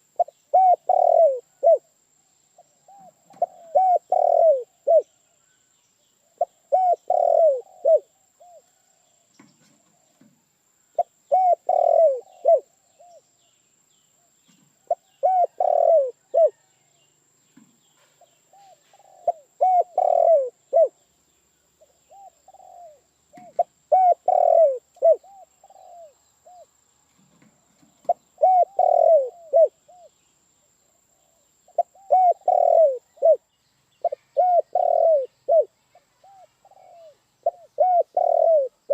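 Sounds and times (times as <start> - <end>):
dove cooing: 0.0 - 1.9, 2.6 - 5.2, 6.3 - 8.8, 11.0 - 13.2, 14.8 - 16.7, 18.2 - 21.0, 21.8 - 26.7, 28.0 - 30.1, 31.2 - 38.9.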